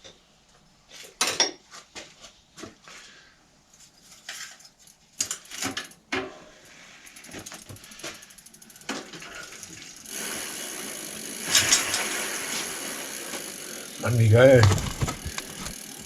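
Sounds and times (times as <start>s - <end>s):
metal bike parts and tools clinking: 14.1s - 15.8s.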